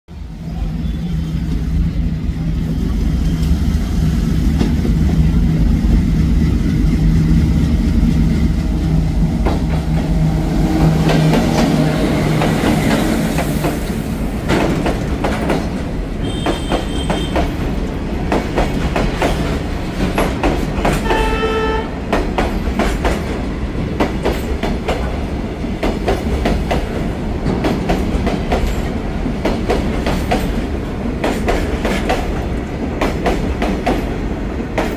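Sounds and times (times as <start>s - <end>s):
diesel locomotive engine hum: 0.1s - 34.9s
train wheels clickety-clack: 0.8s - 34.9s
train horn blasts: 16.2s - 17.6s, 21.0s - 22.0s.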